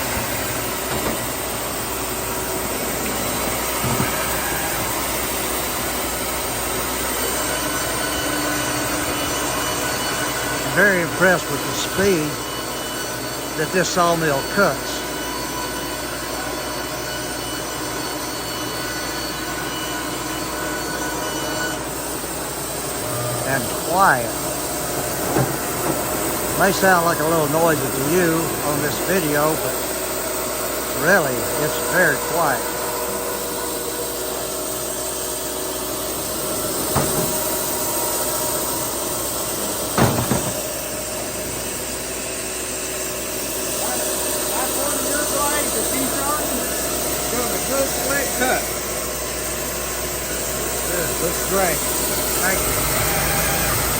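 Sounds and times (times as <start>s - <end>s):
band sawmill cutting a log: 0.0s - 53.9s
knocks: 40.0s - 40.7s.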